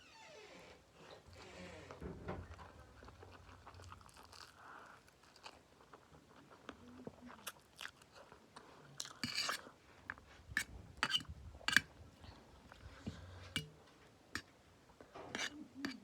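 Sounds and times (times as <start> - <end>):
chewing: 1.3 - 13.7
utensil clicking against dish: 15.4 - 16.0.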